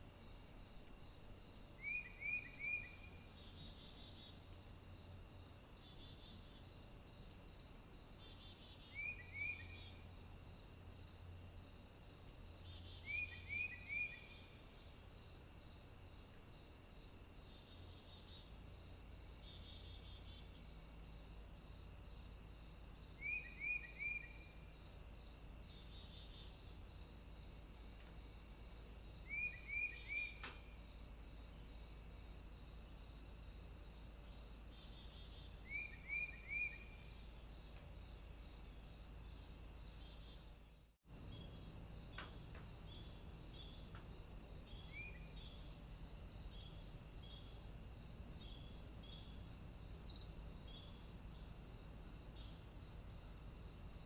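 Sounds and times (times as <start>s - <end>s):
faint high-pitched hiss: 0.0s - 54.0s
small bird chirping: 29.2s - 30.8s, 34.8s - 37.2s, 41.3s - 47.6s.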